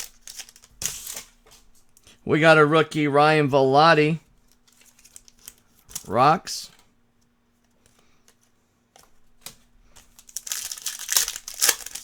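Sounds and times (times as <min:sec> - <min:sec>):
plastic and foil packaging crinkling: 0:00.0 - 0:01.4, 0:04.4 - 0:06.1, 0:09.4 - 0:12.0
faint steady hum: 0:00.0 - 0:12.0.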